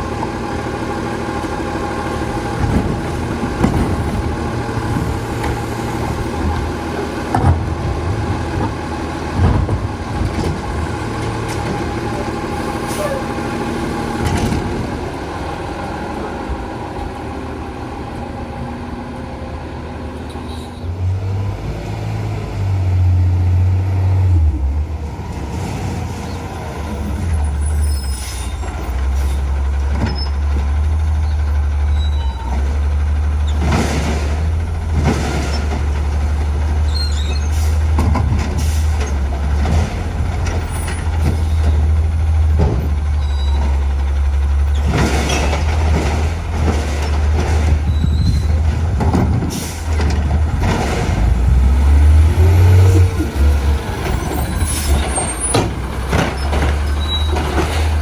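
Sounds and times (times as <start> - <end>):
garbage truck diesel engine revving: 0.0 - 58.0
air brakes hissing: 49.5 - 49.9.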